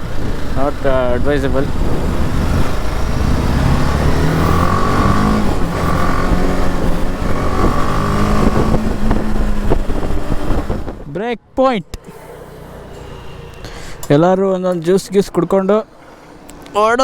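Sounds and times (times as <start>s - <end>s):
motorcycle engine revving: 0.0s - 11.1s, 12.0s - 14.7s
wind rumble on microphone: 0.0s - 11.2s.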